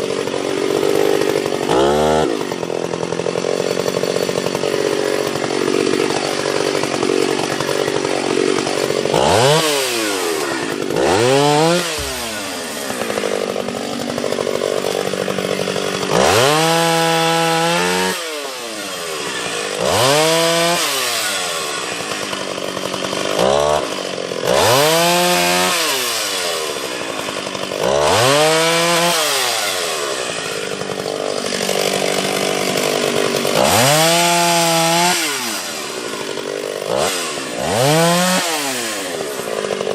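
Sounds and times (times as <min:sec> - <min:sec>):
chainsaw revving and cutting: 0:00.0 - 0:39.9.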